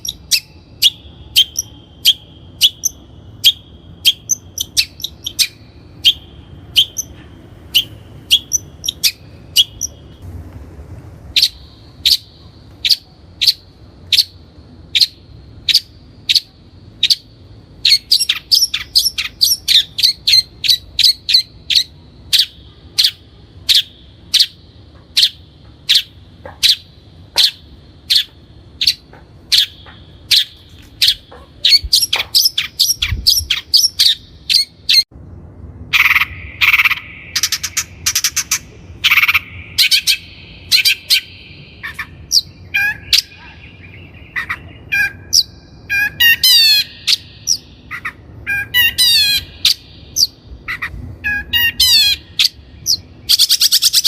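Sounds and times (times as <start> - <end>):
bird calling sharp notes: 0.0 - 10.2, 35.8 - 54.0.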